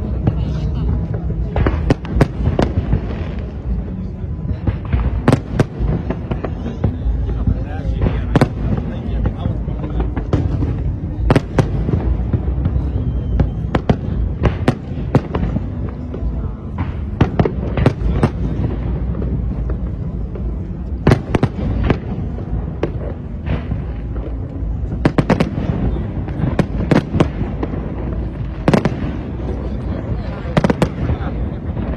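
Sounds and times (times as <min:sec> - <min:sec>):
fireworks bangs: 0:00.0 - 0:31.9
low rumble of bursts: 0:00.0 - 0:31.9.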